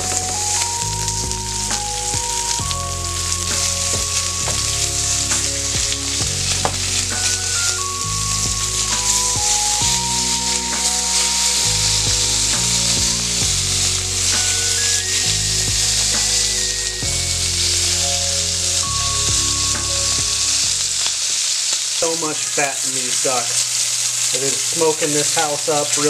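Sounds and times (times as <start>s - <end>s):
background music: 0.0s - 22.1s
meat sizzling in a skillet: 0.0s - 26.0s.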